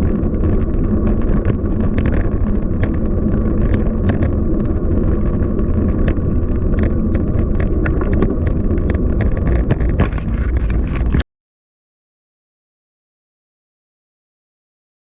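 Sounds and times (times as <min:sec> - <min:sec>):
small clicks and rattles: 0:00.0 - 0:11.2
street noise: 0:00.0 - 0:11.2
wind rumbling on microphone: 0:00.0 - 0:11.2.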